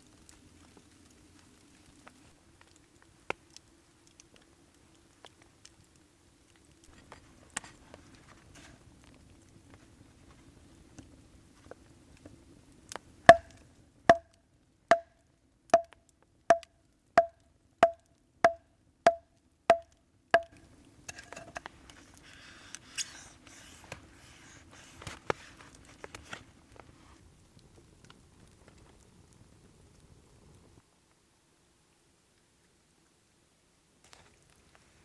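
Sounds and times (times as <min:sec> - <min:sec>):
sharp ringing knocks: 0:13.3 - 0:13.5, 0:17.2 - 0:19.8
soft rustling: 0:21.1 - 0:27.3.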